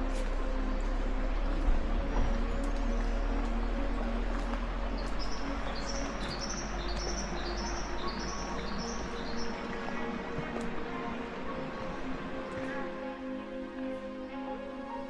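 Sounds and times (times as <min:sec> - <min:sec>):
steady low rumble: 0:00.0 - 0:14.5
bird chirping: 0:02.1 - 0:10.2.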